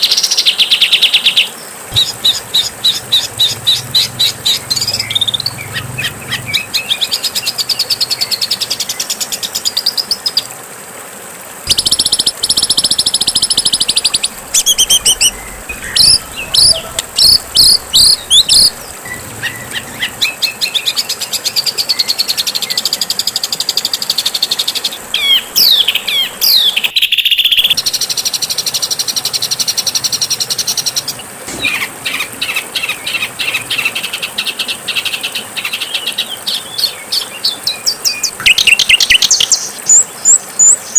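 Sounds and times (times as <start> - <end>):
songbird trills and chattering: 0.0 - 8.8, 11.7 - 22.8, 24.6 - 28.1.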